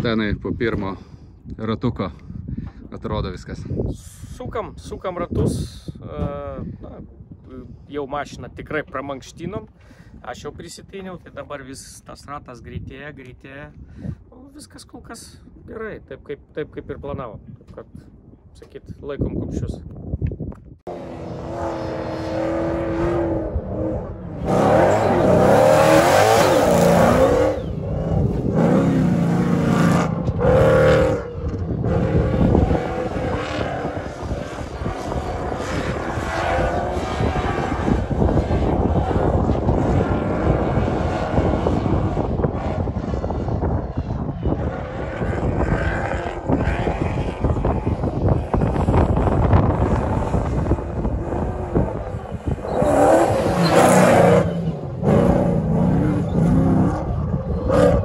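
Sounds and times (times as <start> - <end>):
car engine revving hard: 20.9 - 43.0, 49.5 - 58.0.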